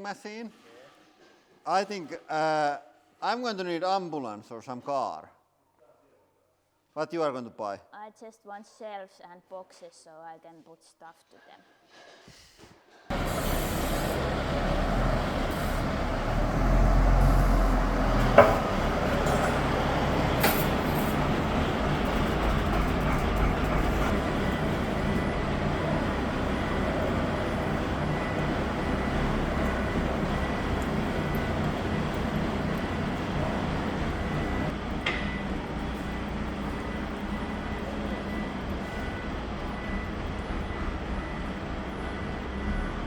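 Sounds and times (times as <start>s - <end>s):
forklift engine rumbling: 13.1s - 43.0s.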